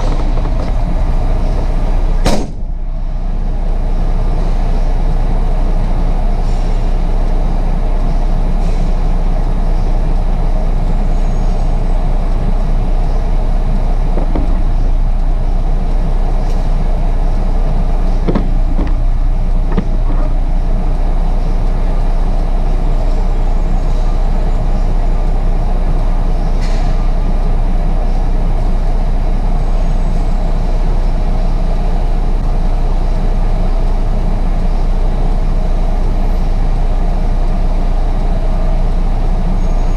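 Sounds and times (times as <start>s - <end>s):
truck engine rumbling: 0.0s - 39.9s.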